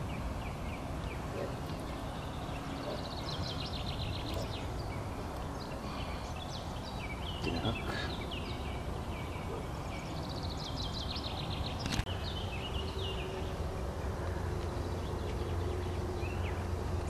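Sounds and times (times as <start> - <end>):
small birds singing: 0.0 - 17.0.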